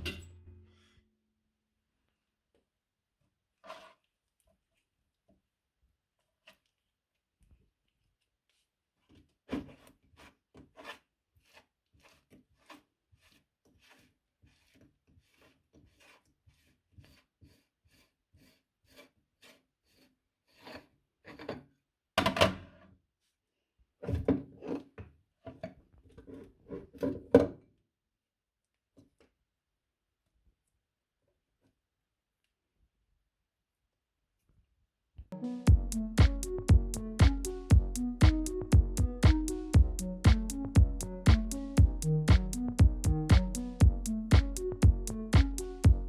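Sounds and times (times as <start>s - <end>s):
meat grinder rasping and crunching: 9.7s - 20.8s.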